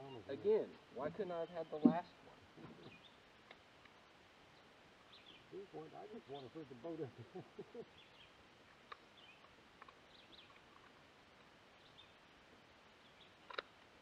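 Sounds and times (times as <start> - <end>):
faint background hiss: 0.0 - 14.0
small clicks: 13.4 - 13.9.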